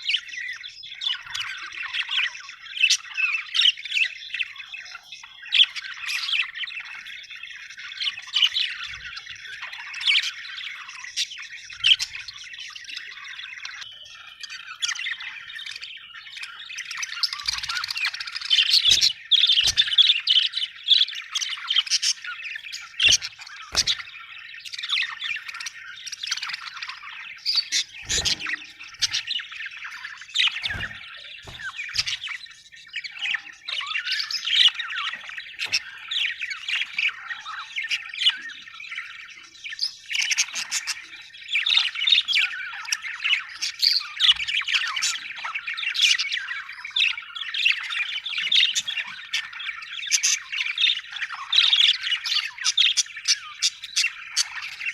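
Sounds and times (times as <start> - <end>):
budgerigars chirping and squawking: 0.0 - 54.9.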